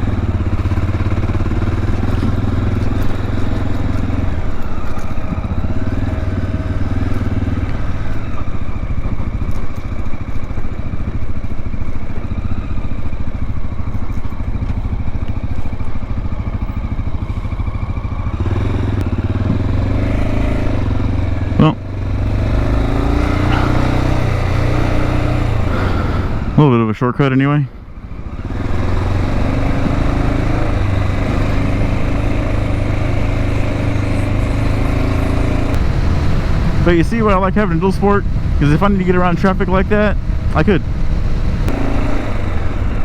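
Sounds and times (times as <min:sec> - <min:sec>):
motorcycle engine revving: 0:00.0 - 0:27.1, 0:27.7 - 0:43.0.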